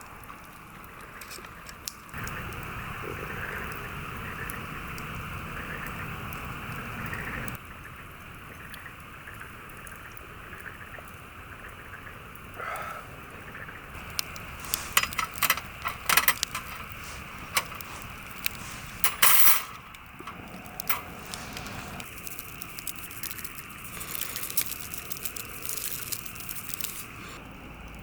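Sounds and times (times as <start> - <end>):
faint crackling: 12.3 - 27.5
clinks of small hard items: 14.0 - 27.2
scraping rustle: 14.0 - 27.4.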